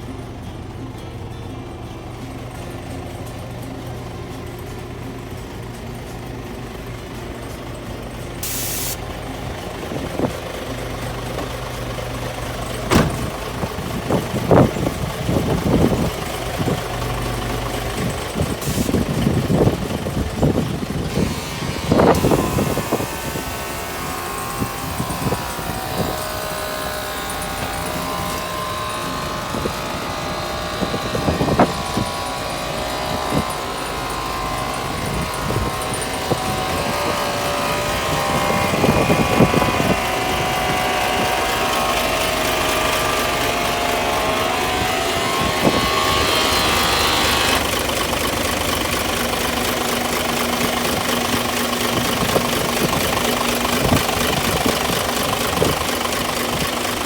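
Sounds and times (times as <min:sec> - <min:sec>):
diesel truck engine revving: 0:00.0 - 0:57.0
sharp engine knocks: 0:11.2 - 0:16.9.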